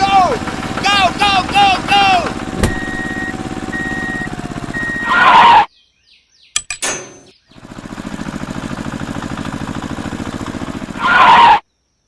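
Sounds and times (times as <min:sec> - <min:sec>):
small engine puttering: 0:00.0 - 0:05.2, 0:07.5 - 0:11.3.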